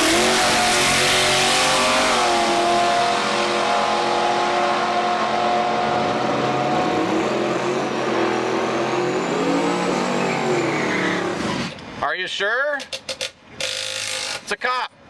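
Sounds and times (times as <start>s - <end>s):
drag car engine running: 0.0s - 4.2s.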